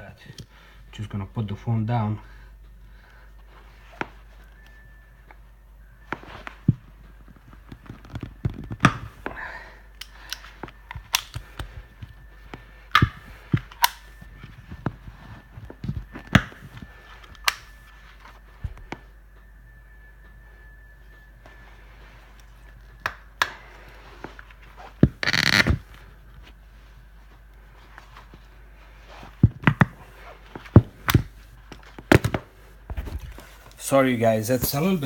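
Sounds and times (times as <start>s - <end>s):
pliers clicking and snapping: 10.0s - 11.7s, 12.9s - 14.0s, 17.3s - 17.7s.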